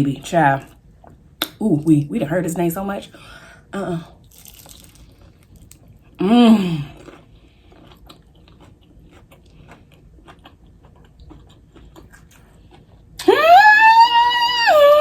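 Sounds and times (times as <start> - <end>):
chewing and biting food: 4.3 - 6.1, 6.8 - 13.2.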